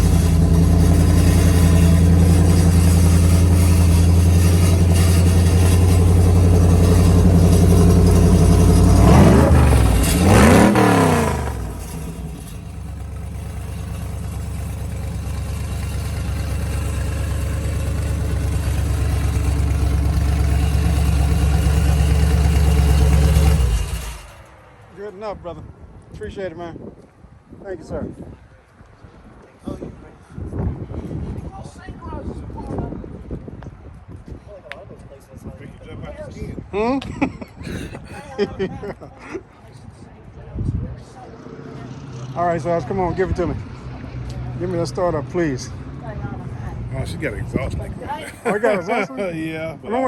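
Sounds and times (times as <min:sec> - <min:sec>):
car engine idling: 0:00.0 - 0:24.5, 0:46.9 - 0:50.0
engine revving blips: 0:00.0 - 0:24.5.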